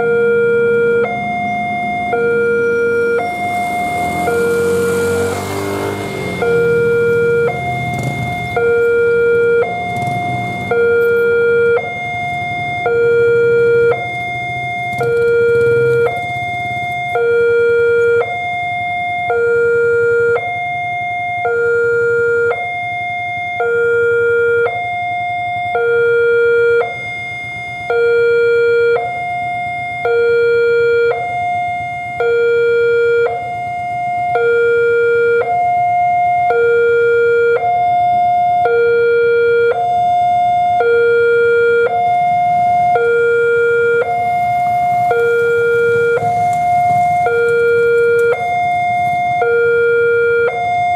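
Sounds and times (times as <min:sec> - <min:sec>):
two-tone crossing alarm: 0:00.0 - 0:50.9.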